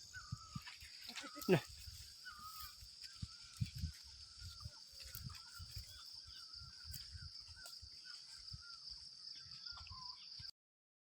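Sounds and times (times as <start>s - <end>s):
faint bird calling: 0.0s - 3.6s.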